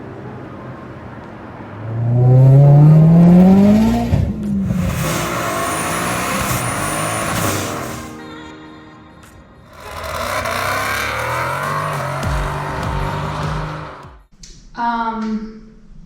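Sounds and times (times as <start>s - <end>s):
car engine accelerating hard: 1.6s - 8.2s, 9.7s - 14.3s.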